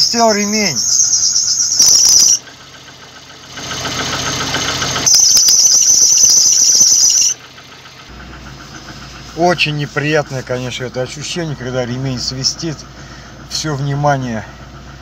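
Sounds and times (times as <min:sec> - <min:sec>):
belt squealing: 0:00.0 - 0:02.4, 0:05.0 - 0:07.4
engine running: 0:00.0 - 0:15.0.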